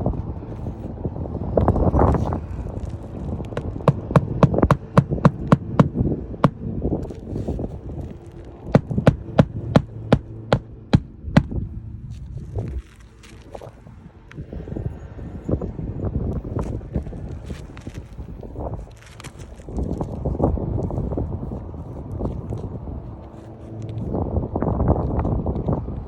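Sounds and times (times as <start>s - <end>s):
hammer striking nails into shingles: 3.6s - 6.6s.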